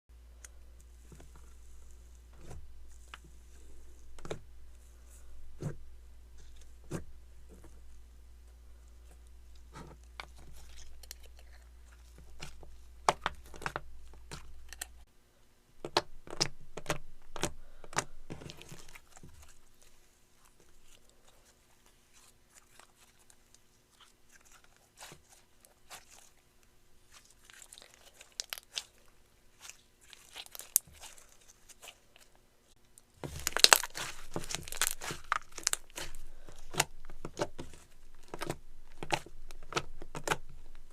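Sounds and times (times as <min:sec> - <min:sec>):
slime squeezed wet crackles: 0:27.1 - 0:32.3, 0:33.3 - 0:40.4.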